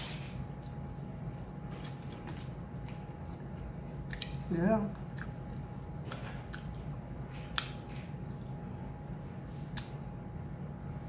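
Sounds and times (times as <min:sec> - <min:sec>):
wet chewing and lip smacks: 0:01.7 - 0:08.5, 0:09.4 - 0:10.2.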